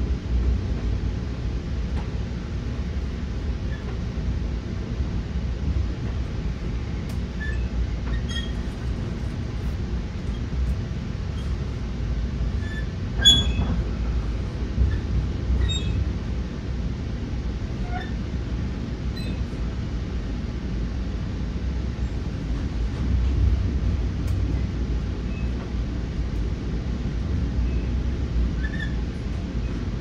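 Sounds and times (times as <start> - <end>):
train wheels rumbling on track: 0.0 - 30.0
creaks and rattles: 7.1 - 11.7
sharp squeal: 12.6 - 13.6.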